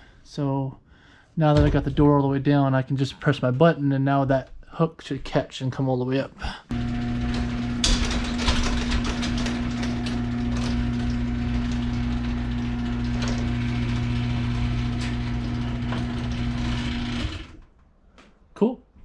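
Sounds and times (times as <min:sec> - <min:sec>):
garage door opener motor hum: 0:06.7 - 0:17.7
garage door rattling and clicking: 0:06.7 - 0:17.8.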